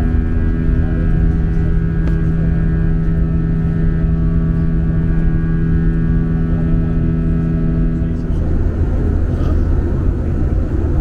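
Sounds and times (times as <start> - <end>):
jet engines droning in cabin: 0.0 - 11.0.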